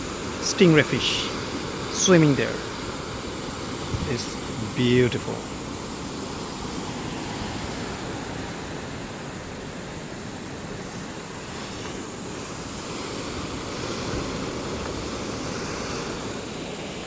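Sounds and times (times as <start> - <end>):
distant ocean surf: 0.0 - 17.0
wind rushing: 3.9 - 5.4.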